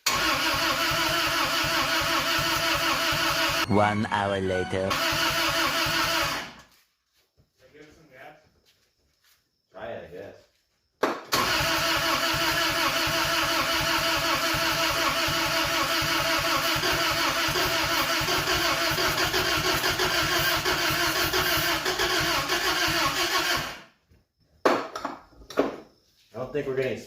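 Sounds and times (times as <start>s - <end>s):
engine cranking on starter: 0.0s - 3.7s, 4.9s - 6.6s, 11.3s - 23.9s
starter whine: 0.0s - 6.7s, 11.3s - 23.9s.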